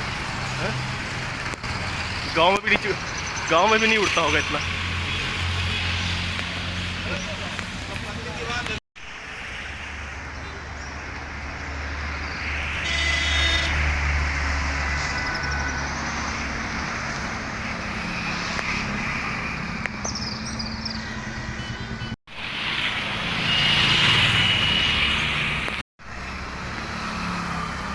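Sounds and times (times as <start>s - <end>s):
vehicle engines running and passing: 0.0s - 27.9s.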